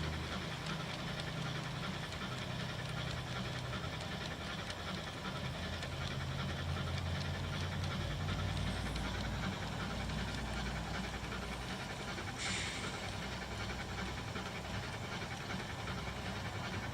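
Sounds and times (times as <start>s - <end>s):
faint clicks: 0.0s - 16.7s
model train running on track: 0.0s - 16.9s
steady low hum: 0.0s - 16.9s.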